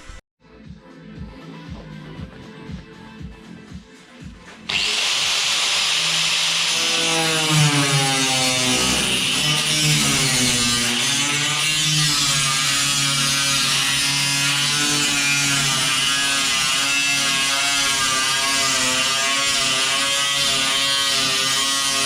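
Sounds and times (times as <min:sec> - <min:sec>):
power tool cutting steel: 0:04.7 - 0:22.0.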